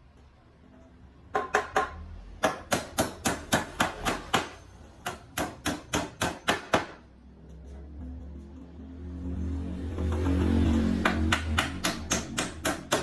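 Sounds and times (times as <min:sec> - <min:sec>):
rapid hammer blows: 0:10.4 - 0:13.0.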